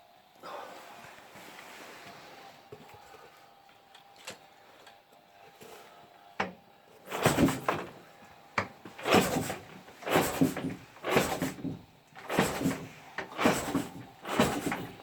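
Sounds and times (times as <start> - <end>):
motorcycle kick-starter clunking: 6.4 - 8.0, 8.6 - 15.0.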